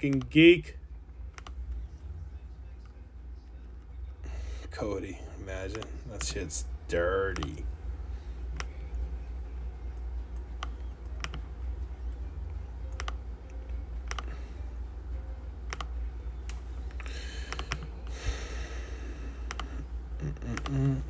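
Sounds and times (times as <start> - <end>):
computer keys clicking: 0.0 - 0.4, 1.3 - 1.8, 5.7 - 6.4, 7.3 - 7.6, 10.4 - 11.5, 12.8 - 14.3, 15.7 - 17.9, 19.4 - 19.8, 20.4 - 21.0
low hum: 0.0 - 21.0.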